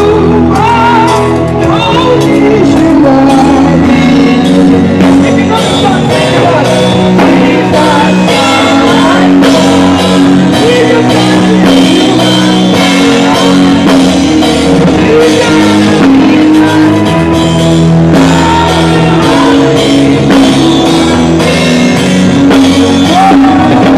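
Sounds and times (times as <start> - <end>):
band playing: 0.0 - 23.9
drums steady beat: 0.0 - 23.9
choir singing: 5.7 - 23.9.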